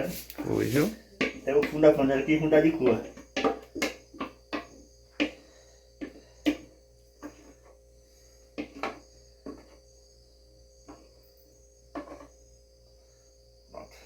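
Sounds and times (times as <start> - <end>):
spoon knocking against pot: 1.2 - 2.0, 2.6 - 5.4.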